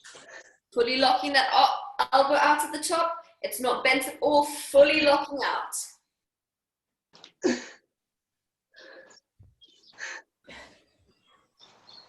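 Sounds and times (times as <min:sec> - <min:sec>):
heavy forceful breathing: 0:08.7 - 0:11.2.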